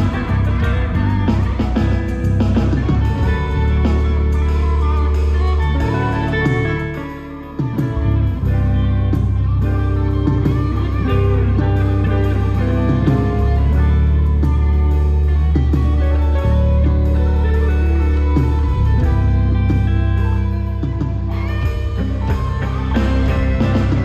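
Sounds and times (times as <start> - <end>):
bass guitar: 0.0 - 24.0
drum kit: 0.0 - 24.0
electric guitar lead: 0.0 - 24.0.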